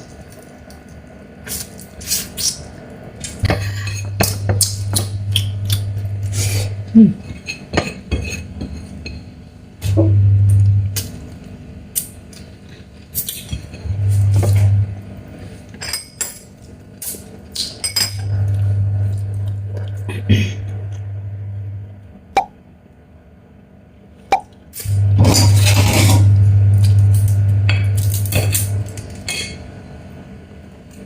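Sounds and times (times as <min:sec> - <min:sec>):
low hum: 0:03.1 - 0:07.7, 0:08.5 - 0:11.8, 0:13.5 - 0:15.9, 0:18.0 - 0:23.2, 0:24.3 - 0:31.0.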